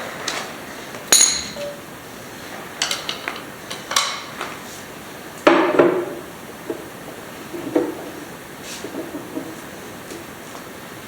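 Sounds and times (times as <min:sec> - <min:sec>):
metal hand tools clinking: 0:01.1 - 0:01.8.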